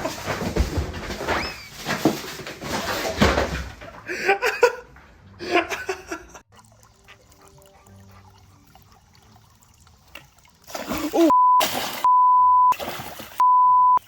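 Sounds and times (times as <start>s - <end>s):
person laughing: 4.0s - 6.4s, 10.9s - 11.4s.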